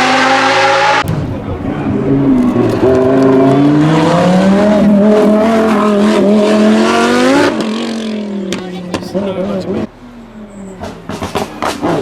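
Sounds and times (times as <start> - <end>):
race car engine accelerating: 0.0 - 12.0.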